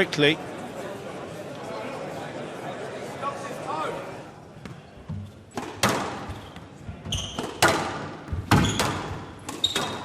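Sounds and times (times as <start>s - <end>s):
shoes squeaking on court: 4.6s - 10.0s
squash ball striking rackets and walls: 4.6s - 10.0s.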